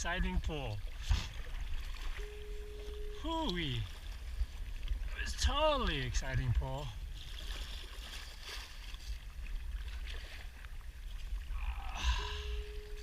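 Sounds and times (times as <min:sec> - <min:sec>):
faint water and kayak noise: 0:00.0 - 0:13.0
steady single note: 0:02.2 - 0:04.1, 0:12.0 - 0:13.0.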